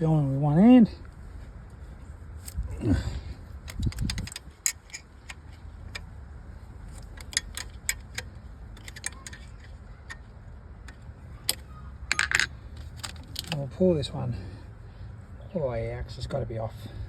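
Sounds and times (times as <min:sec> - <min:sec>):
spanner clicking on bolt: 0:03.7 - 0:06.1, 0:06.9 - 0:13.6.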